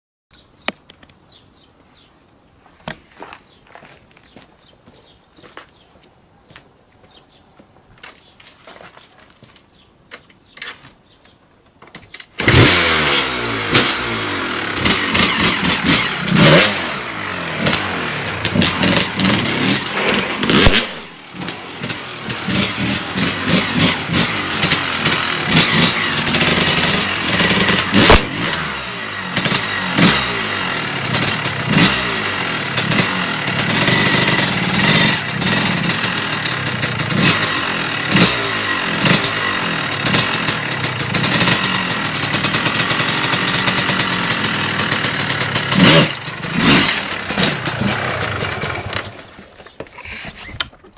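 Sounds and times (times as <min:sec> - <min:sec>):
motorbike engine revving: 0:12.4 - 0:50.7.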